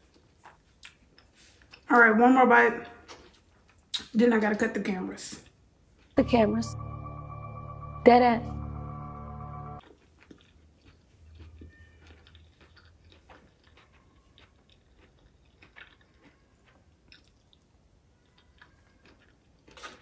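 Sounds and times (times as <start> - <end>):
chewing salad greens: 0.0 - 2.0, 2.7 - 4.1, 9.8 - 20.0.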